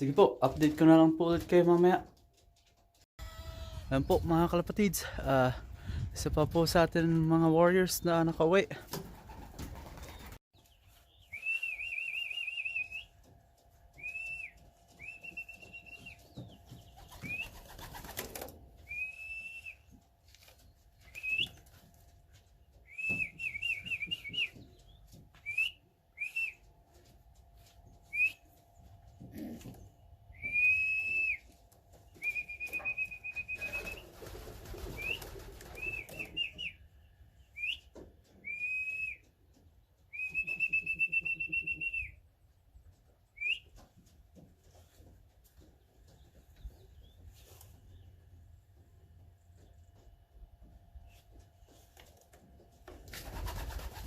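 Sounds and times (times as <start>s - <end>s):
person whistling: 11.3s - 13.1s, 28.1s - 28.4s, 30.4s - 31.4s, 32.2s - 34.0s, 40.1s - 42.2s.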